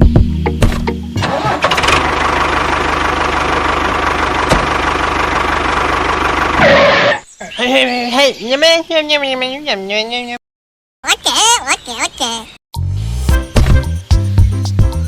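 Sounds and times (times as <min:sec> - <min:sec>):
engine chugging steadily: 0:01.3 - 0:06.8.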